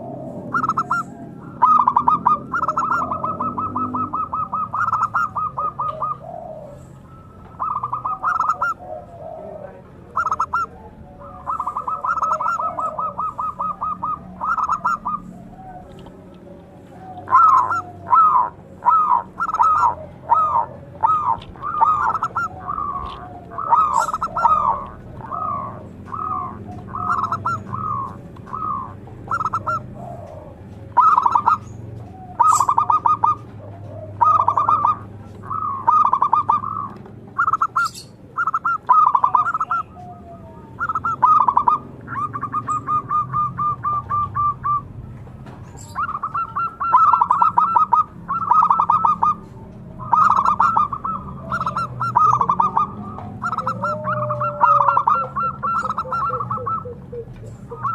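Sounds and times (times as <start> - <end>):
dove calling: 0.0 - 57.9.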